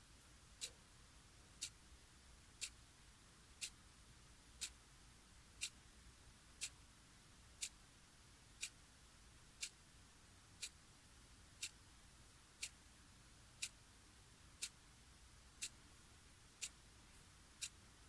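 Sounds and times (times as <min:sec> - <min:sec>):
clock ticking: 0:16.6 - 0:16.8.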